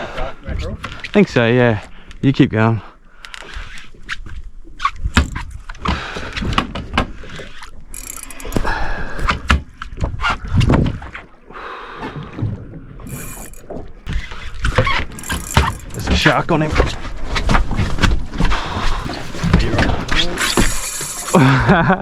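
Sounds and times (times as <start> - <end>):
fishing reel cranking: 7.3 - 9.3, 13.0 - 16.4, 20.3 - 21.6
gear knocking against boat: 13.0 - 21.2.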